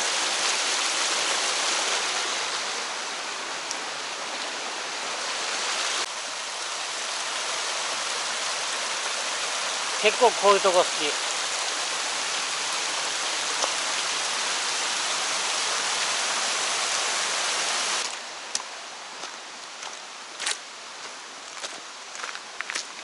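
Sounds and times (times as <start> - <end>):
mountain stream rushing: 0.0 - 23.0
footsteps crunching on trail: 18.6 - 23.0.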